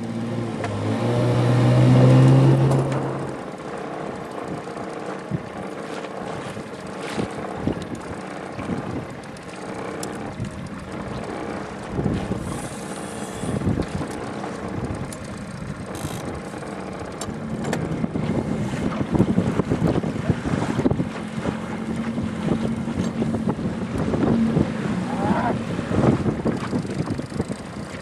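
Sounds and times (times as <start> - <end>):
low motor hum: 0.0 - 28.0
water slapping against boat: 0.0 - 28.0
wind buffeting microphone: 1.3 - 28.0
knocks against hull: 17.6 - 20.0.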